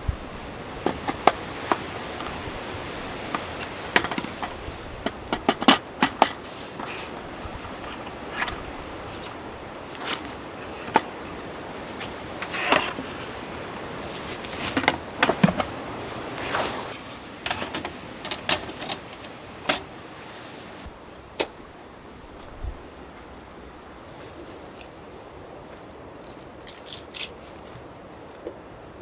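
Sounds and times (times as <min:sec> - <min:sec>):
rustling scrapes: 0:00.0 - 0:20.9
sharp clicks and knocks: 0:00.1 - 0:02.4, 0:03.3 - 0:06.9.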